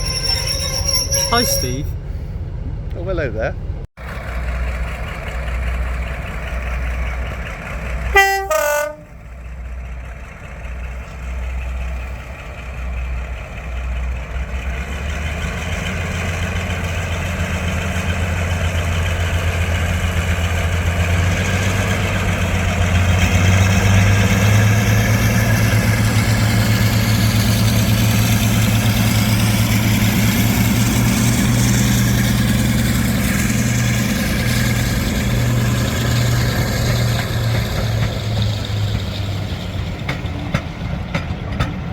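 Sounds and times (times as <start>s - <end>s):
diesel locomotive engine drone: 0.0s - 41.9s
locomotive horn toot: 8.1s - 9.2s.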